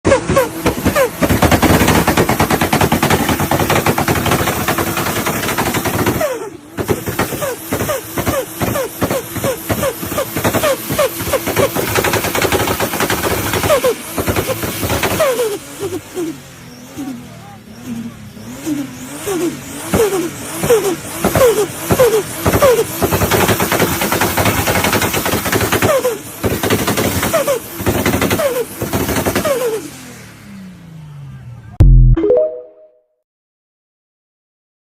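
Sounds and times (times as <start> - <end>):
car engine revving: 0.1 - 31.8.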